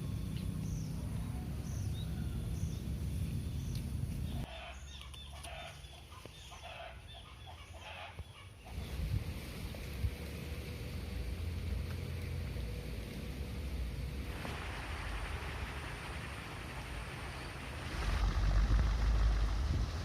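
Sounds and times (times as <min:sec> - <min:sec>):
low wind rumble: 0:08.7 - 0:20.0.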